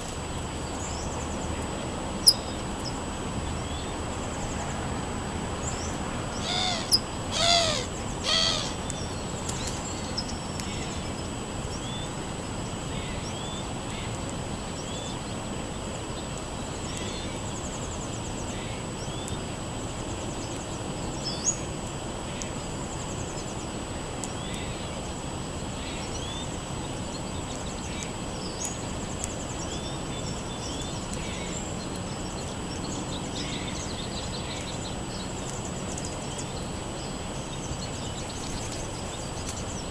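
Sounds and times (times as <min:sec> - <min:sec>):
harsh bird calls: 0:05.6 - 0:11.0
songbird chirping: 0:05.6 - 0:12.2.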